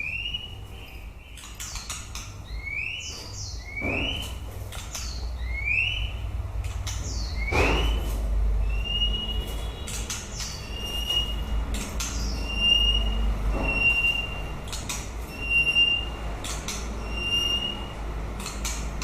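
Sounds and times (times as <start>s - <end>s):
bird sharp clicks: 1.3s - 2.4s, 3.7s - 5.2s, 9.8s - 12.6s, 14.6s - 15.1s, 16.4s - 17.0s, 18.4s - 19.0s
bird whistling notes: 7.1s - 18.0s.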